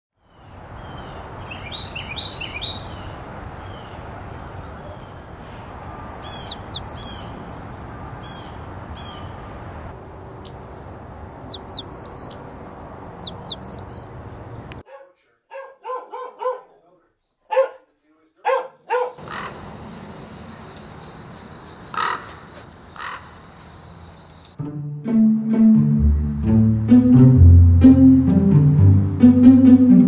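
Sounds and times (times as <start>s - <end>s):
songbird singing: 0.2s - 14.8s, 18.9s - 29.3s
dog barking: 14.8s - 16.8s, 17.4s - 19.5s.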